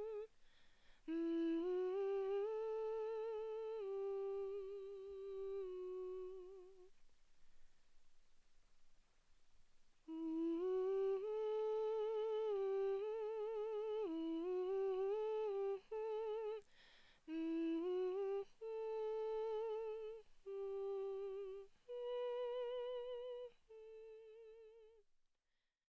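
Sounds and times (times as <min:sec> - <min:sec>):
person humming a melody: 0:00.0 - 0:00.3, 0:01.0 - 0:07.0, 0:10.0 - 0:25.0
intake of breath: 0:00.3 - 0:01.1, 0:16.6 - 0:17.3.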